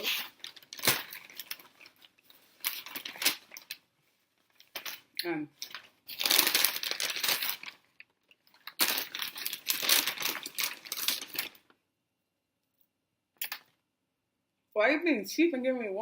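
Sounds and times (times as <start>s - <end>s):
paper bags rustling and crinkling: 0.0s - 11.8s.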